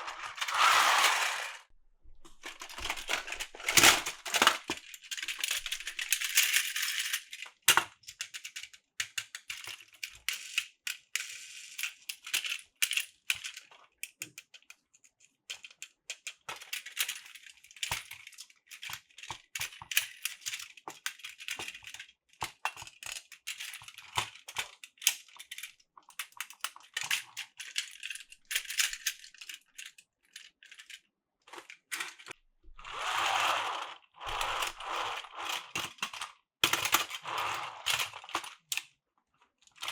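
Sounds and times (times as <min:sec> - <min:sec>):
crinkly rustling: 0:00.0 - 0:06.0
plastic pieces clicking and clattering: 0:00.0 - 0:38.9.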